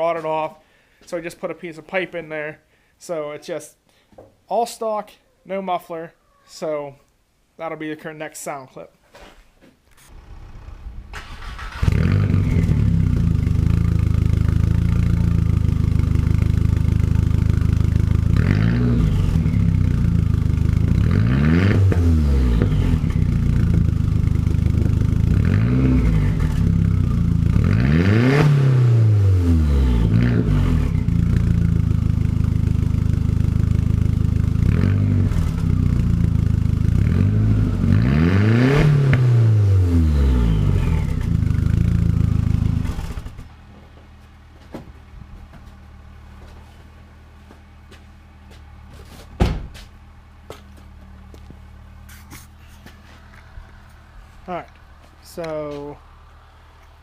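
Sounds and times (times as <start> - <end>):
car engine starting: 10.0 - 43.8
car engine idling loudly: 10.1 - 21.1
car engine revving: 10.1 - 43.5.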